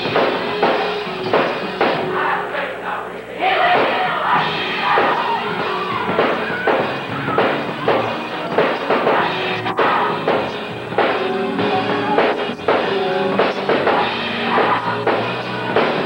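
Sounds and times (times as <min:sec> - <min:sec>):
drum kit beat: 0:00.0 - 0:02.5, 0:03.6 - 0:16.0
gospel choir singing: 0:00.0 - 0:16.0
live band playing: 0:04.3 - 0:16.0.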